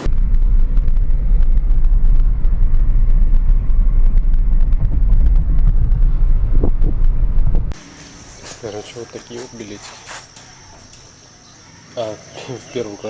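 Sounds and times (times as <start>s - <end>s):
low rumble of moving vehicle: 0.0s - 8.4s.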